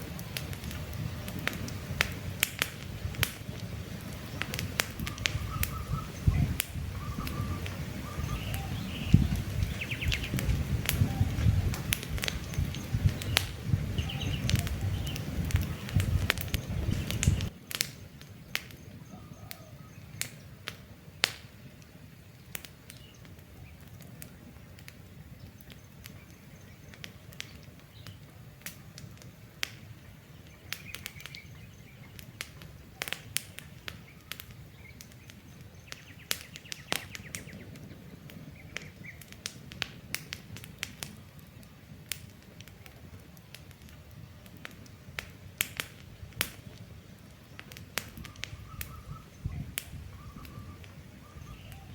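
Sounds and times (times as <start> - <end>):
campfire crackling: 0.0 - 51.9
faint bird chirps: 4.2 - 11.7, 12.3 - 17.5, 18.7 - 20.6, 48.2 - 51.9.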